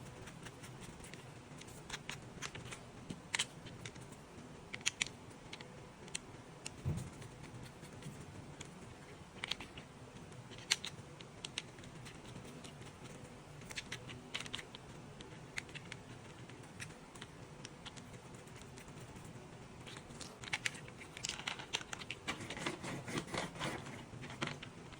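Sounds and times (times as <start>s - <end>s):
soft thump: 6.8s - 7.1s.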